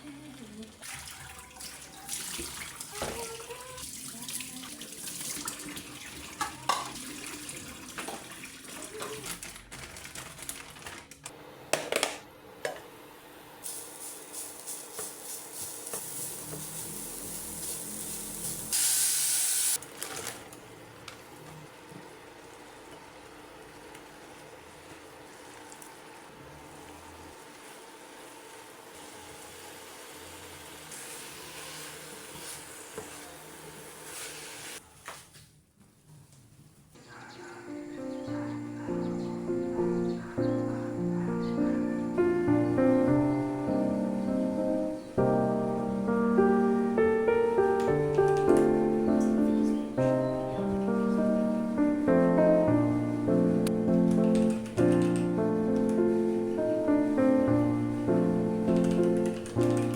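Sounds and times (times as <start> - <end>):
running water: 0.0 - 9.6
faint hum: 36.9 - 47.5.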